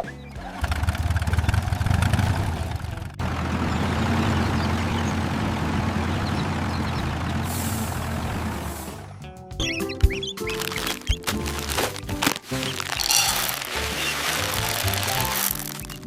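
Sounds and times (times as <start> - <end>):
cartoon vehicle engine running: 0.0 - 9.1, 12.7 - 16.0
hiss: 7.5 - 8.0, 8.6 - 9.1.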